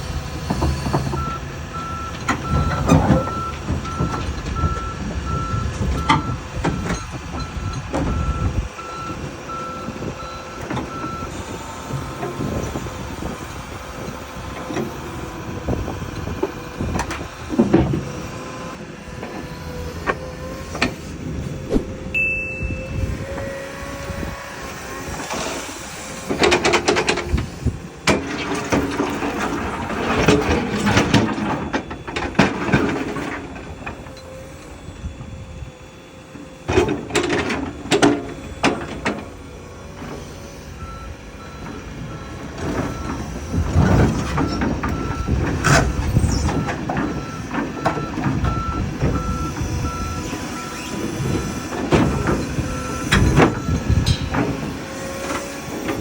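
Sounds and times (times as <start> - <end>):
tracked excavator running: 0.0 - 56.0
travel alarm beeping: 21.7 - 23.9.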